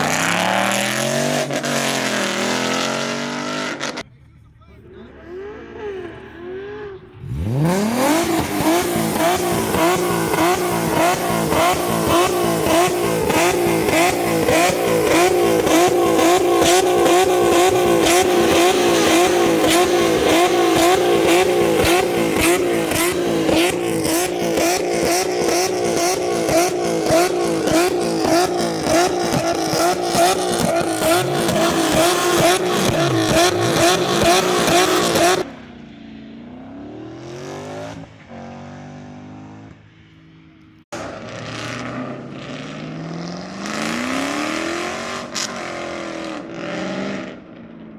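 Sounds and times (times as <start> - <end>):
car engine revving near limiter: 0.0 - 4.0, 4.8 - 39.7, 41.0 - 47.5
spinning tyres hissing: 0.0 - 4.0, 7.2 - 35.5.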